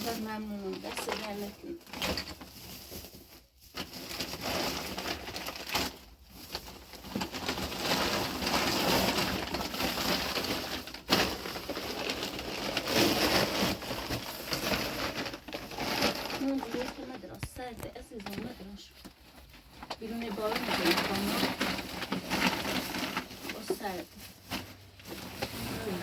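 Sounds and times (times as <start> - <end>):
plastic bags rustling: 0.0 - 26.0.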